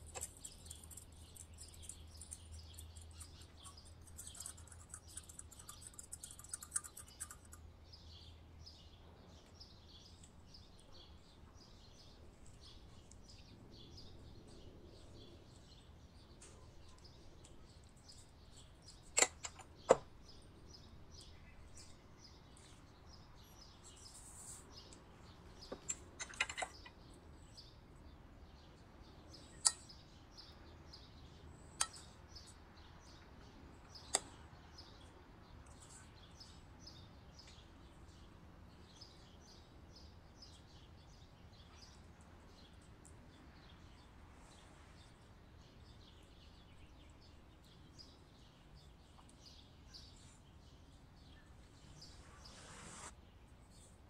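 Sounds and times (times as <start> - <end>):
small birds chirping: 0.0 - 54.0
sharp clicks: 18.9 - 20.1, 25.7 - 27.0.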